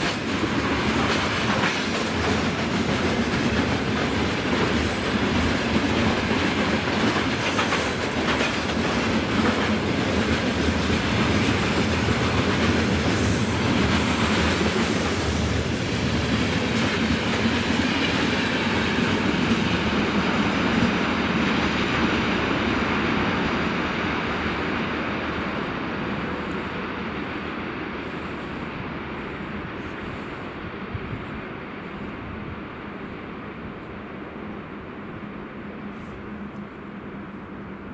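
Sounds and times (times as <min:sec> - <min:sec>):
freight train wheels clattering: 0:00.0 - 0:23.8.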